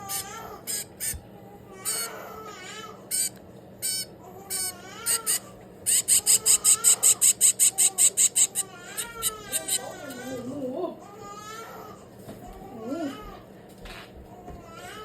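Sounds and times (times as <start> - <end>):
baby bird begging calls: 0.0 - 1.2, 3.1 - 10.4.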